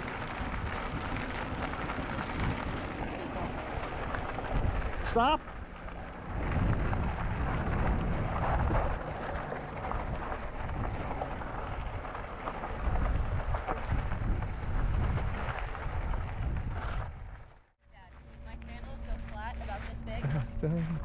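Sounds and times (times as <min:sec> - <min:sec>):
wind buffeting microphone: 0:00.0 - 0:17.6.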